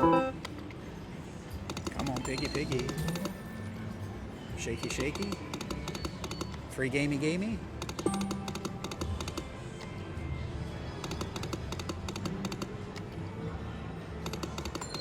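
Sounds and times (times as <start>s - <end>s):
electronic game music: 0.0s - 0.4s, 8.1s - 9.1s
slot machine reels clicking: 7.9s - 9.4s.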